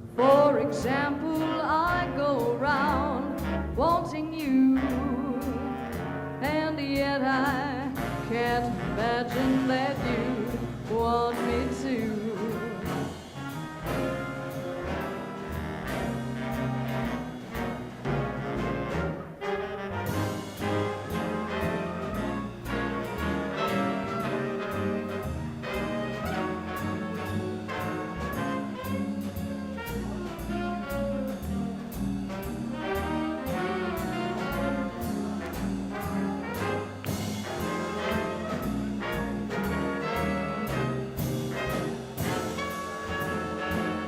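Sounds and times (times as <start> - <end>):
swing band playing: 0.0 - 44.0.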